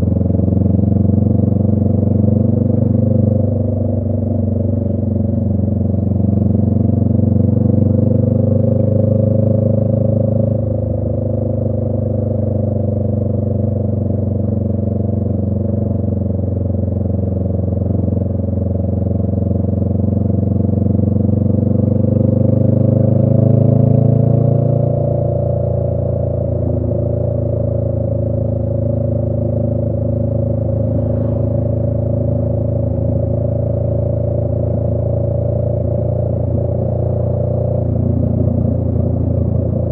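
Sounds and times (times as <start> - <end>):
motorcycle exhaust note: 17.7 - 39.9.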